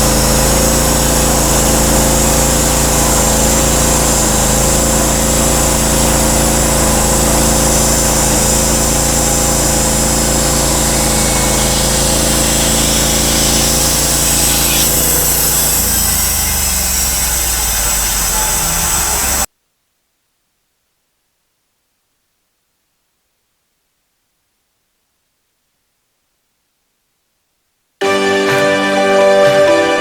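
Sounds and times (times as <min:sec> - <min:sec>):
gas engine running: 0:00.0 - 0:19.5.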